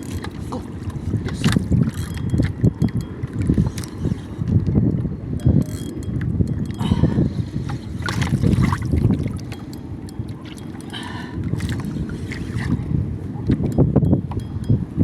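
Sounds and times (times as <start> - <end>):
knocks and splashes: 0.0 - 3.9, 8.0 - 9.7
water lapping around boat: 0.0 - 15.0
wind buffeting microphone: 0.0 - 15.0.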